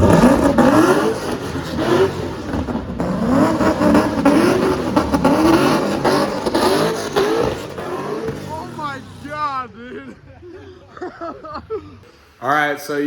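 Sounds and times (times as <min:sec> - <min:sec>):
car engine revving: 0:00.0 - 0:10.2.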